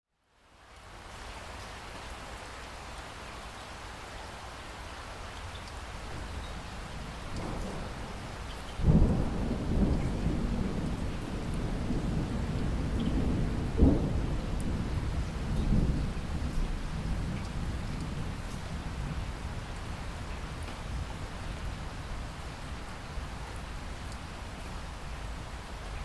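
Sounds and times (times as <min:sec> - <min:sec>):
steady rain: 0:00.1 - 0:26.0
distant thunder rolling: 0:06.1 - 0:23.2
thunder crack: 0:07.4 - 0:17.4.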